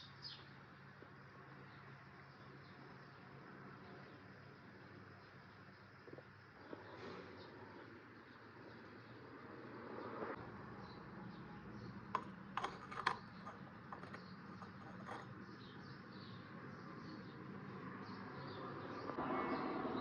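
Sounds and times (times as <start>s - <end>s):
kitchenware clinking: 12.2s - 15.3s.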